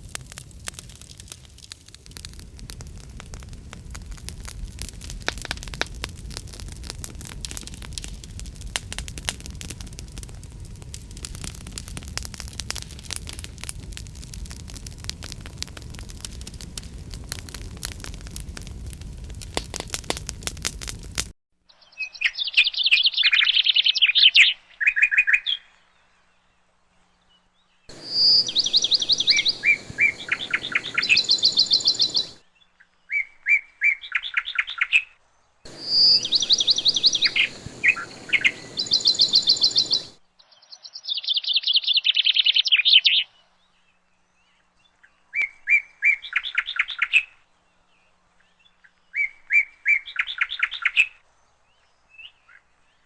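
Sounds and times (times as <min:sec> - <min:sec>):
fireplace crackle: 0:00.0 - 0:21.4, 0:27.9 - 0:32.4, 0:35.7 - 0:40.2
songbird singing trills: 0:21.8 - 0:25.7, 0:27.9 - 0:35.1, 0:35.8 - 0:47.3.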